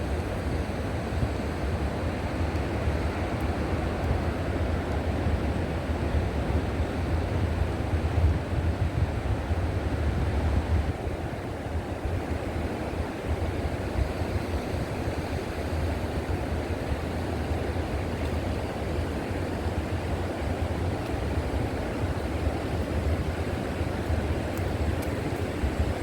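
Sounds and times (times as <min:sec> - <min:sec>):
river water flowing: 0:11.1 - 0:26.0.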